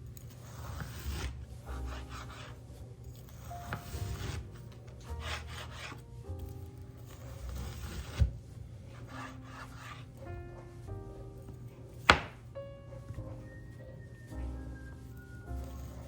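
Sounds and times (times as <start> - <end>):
knife slicing raw meat: 0.2 - 2.6, 3.2 - 6.0, 7.0 - 10.1, 12.0 - 12.4
knife knocking on wooden board: 12.0 - 12.4.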